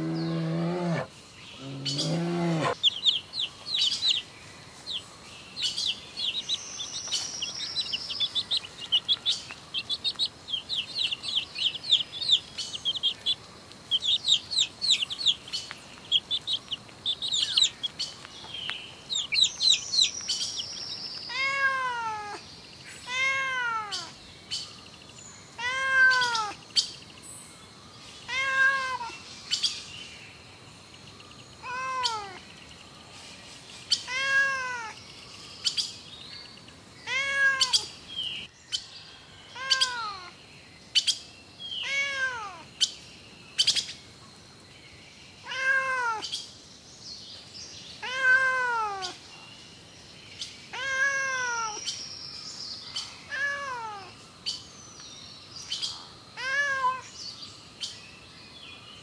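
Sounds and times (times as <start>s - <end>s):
baby chicks peeping: 1.6s - 22.4s
cat meowing: 21.3s - 22.4s, 23.1s - 24.1s, 25.6s - 26.6s, 28.3s - 29.1s, 31.6s - 32.4s, 34.1s - 35.0s, 37.1s - 37.8s, 41.8s - 42.6s, 45.5s - 46.2s, 48.0s - 49.2s, 50.7s - 51.8s, 53.3s - 54.1s, 56.4s - 57.0s.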